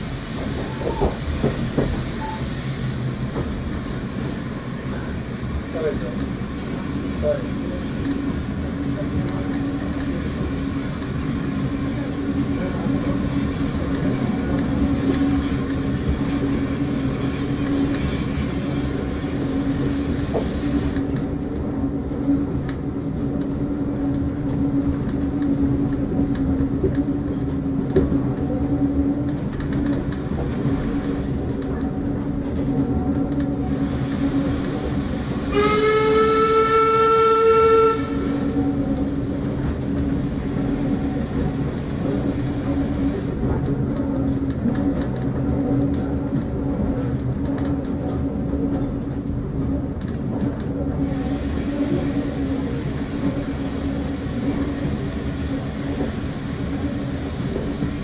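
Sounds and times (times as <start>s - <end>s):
train wheels rumbling on track: 0.0s - 58.0s
train horn: 35.5s - 38.6s.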